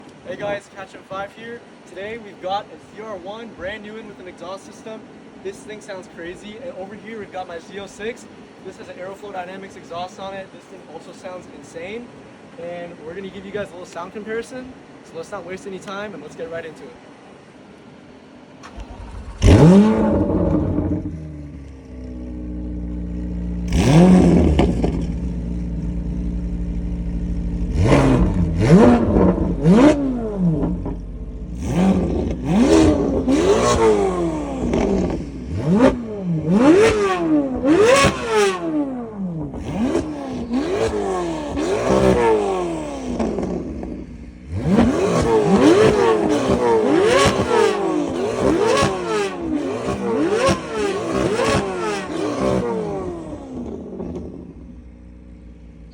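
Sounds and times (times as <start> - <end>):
car engine idling: 18.6 - 55.9
car engine revving: 18.6 - 55.9
car engine starting: 18.6 - 55.9.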